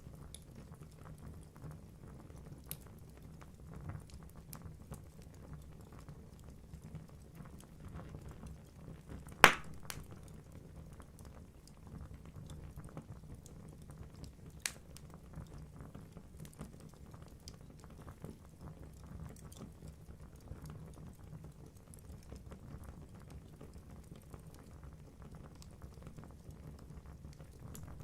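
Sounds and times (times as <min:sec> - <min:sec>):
log popping: 0:09.4 - 0:10.4, 0:27.7 - 0:28.0
fire crackling: 0:09.4 - 0:10.6, 0:27.4 - 0:28.0
low rumble of flame: 0:25.4 - 0:28.0.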